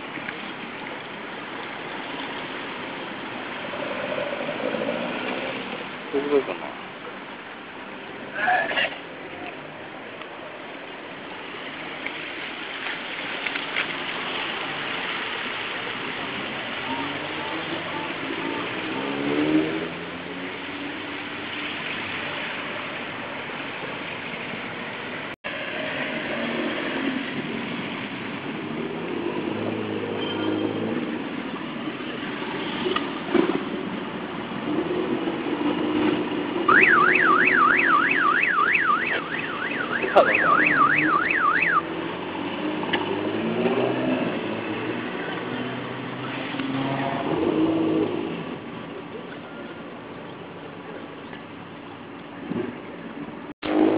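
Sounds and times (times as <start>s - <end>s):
loud car engines revving: 0.0s - 53.9s
electronic siren warbling: 36.7s - 41.9s.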